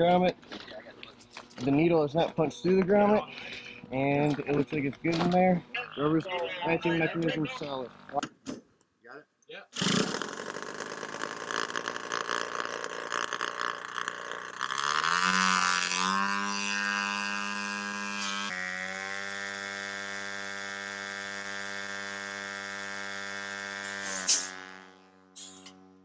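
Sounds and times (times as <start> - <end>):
sharp crack: 9.8 - 15.2
rising whine: 10.0 - 26.0.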